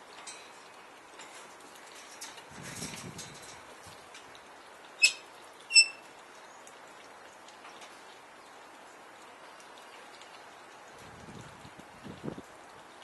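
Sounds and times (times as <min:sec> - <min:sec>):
rain-like hiss: 0:00.0 - 0:13.0
galah screeching: 0:05.0 - 0:06.0.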